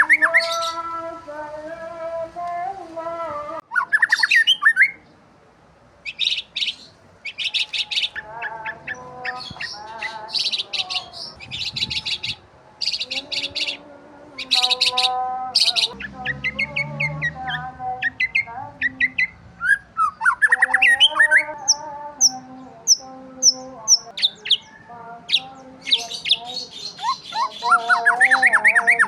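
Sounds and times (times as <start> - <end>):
songbirds chirping and trilling: 0.0 - 29.0.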